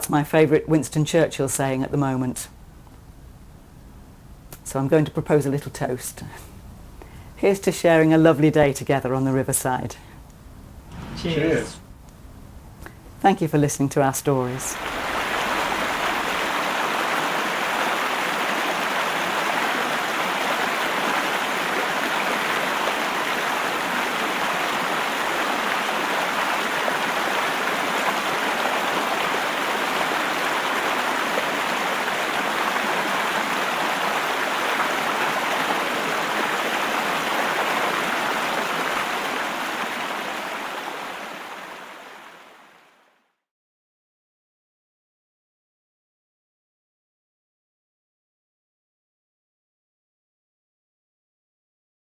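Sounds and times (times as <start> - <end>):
flowing water rushing: 14.5 - 43.1.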